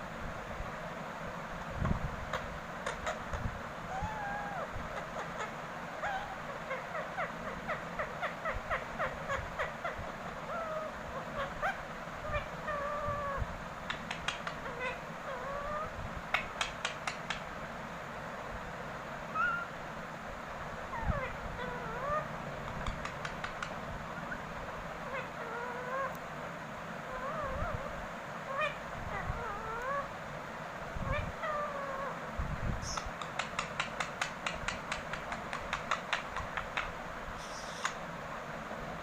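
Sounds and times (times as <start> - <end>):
parrot clicks: 13.8 - 14.6, 16.3 - 17.5, 22.6 - 23.8, 32.8 - 38.0
parrot chattering and whistling: 19.3 - 19.7, 32.8 - 38.0.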